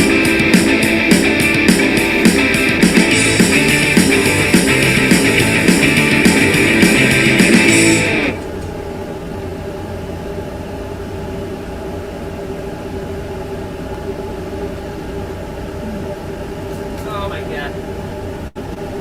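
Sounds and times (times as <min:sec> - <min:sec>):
rock song with guitar: 0:00.0 - 0:08.4
constant drone tone: 0:00.0 - 0:19.0
steady mechanical hum: 0:00.0 - 0:19.0.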